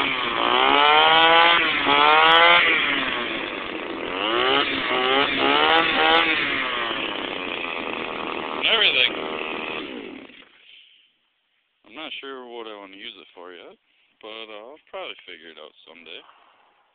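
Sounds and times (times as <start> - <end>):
weed whacker engine revving: 0.0 - 11.0.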